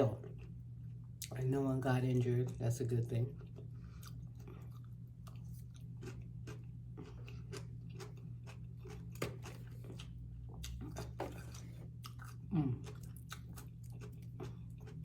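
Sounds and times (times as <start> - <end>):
steady low hum: 0.0 - 15.0
chewing food: 3.3 - 15.0.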